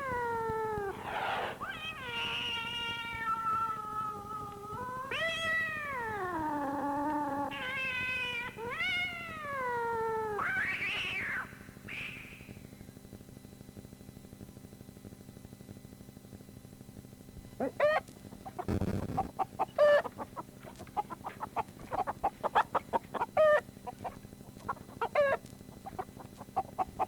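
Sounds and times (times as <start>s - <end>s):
cat yowling: 0.0s - 12.3s, 25.0s - 25.4s
faint hum: 0.0s - 27.0s
cat hissing: 0.9s - 2.7s.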